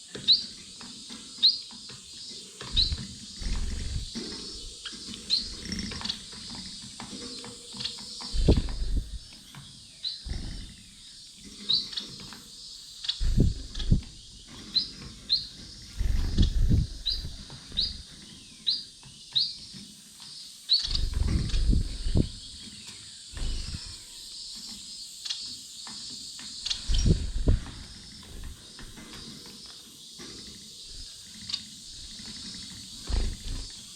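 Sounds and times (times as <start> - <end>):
finches chirping: 0.0 - 33.9
low thumps and rustles: 2.6 - 7.3, 8.2 - 9.5, 13.2 - 18.0, 20.9 - 22.6, 23.4 - 24.0, 26.6 - 29.3, 32.9 - 33.8.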